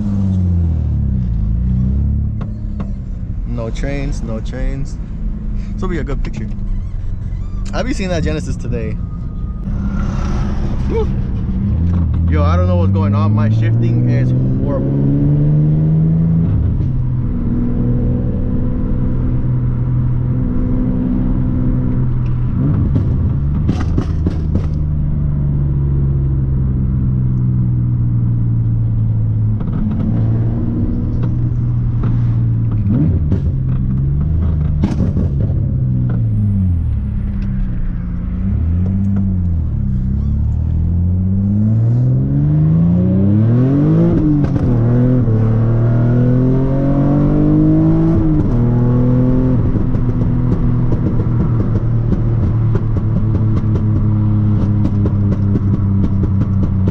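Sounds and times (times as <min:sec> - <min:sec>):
car engine revving through gear shifts: 0:10.9 - 0:24.9, 0:27.1 - 0:37.6, 0:38.3 - 0:56.9.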